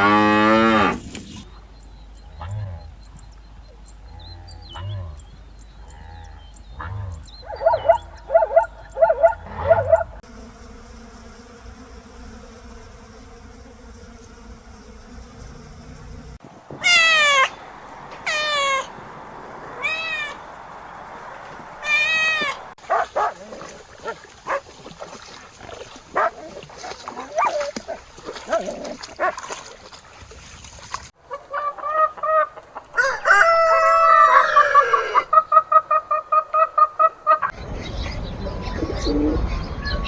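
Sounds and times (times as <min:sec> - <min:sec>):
cat meowing: 0:19.8 - 0:20.4, 0:21.8 - 0:22.6.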